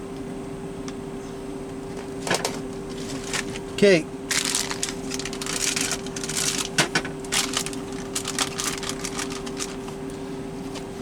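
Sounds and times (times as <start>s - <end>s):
plastic bags crinkling: 3.0s - 3.7s, 4.3s - 10.0s.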